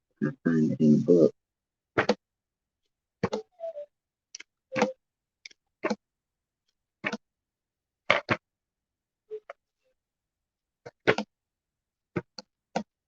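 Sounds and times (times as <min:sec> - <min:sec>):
guidebook pages clicking and tapping: 0:02.0 - 0:02.2, 0:07.0 - 0:07.3, 0:10.8 - 0:11.4, 0:12.1 - 0:13.0.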